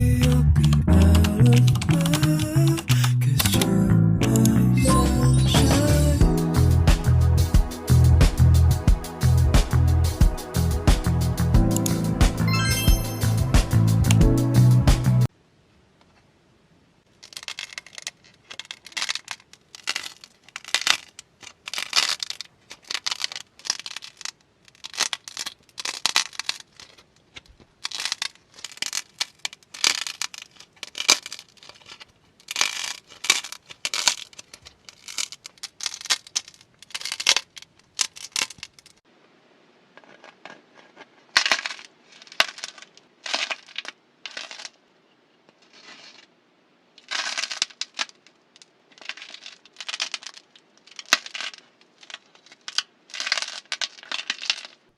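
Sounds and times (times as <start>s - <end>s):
slime crackling and popping: 17.2s - 39.0s, 47.0s - 54.8s.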